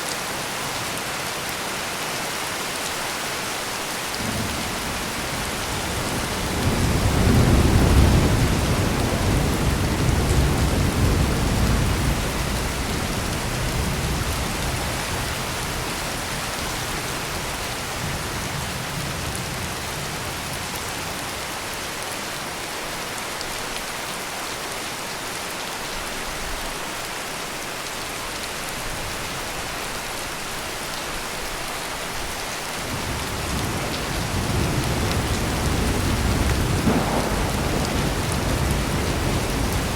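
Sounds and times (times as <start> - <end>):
heavy rain pouring: 0.0 - 39.9
thunder rumbling: 4.2 - 20.7, 32.8 - 39.9.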